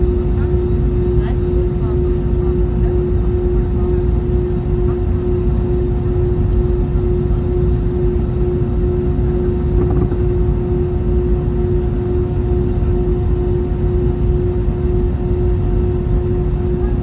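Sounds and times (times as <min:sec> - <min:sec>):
jet engines running: 0:06.1 - 0:17.0.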